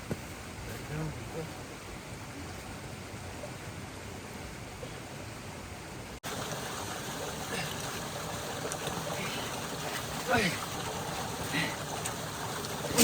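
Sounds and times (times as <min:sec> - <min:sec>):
stream water over rocks: 0:06.2 - 0:13.0.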